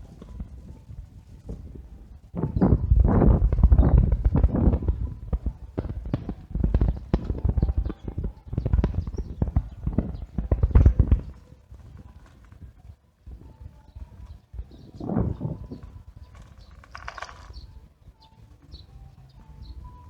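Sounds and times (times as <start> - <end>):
bicycle rattling and knocking: 16.2 - 17.7.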